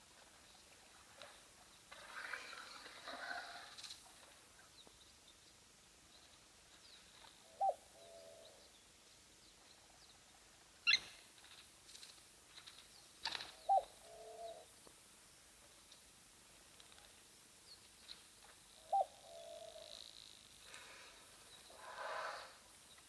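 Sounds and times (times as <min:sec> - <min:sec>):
bird mid-pitched call: 0:10.8 - 0:11.1
faint high bird chirps: 0:10.8 - 0:11.2.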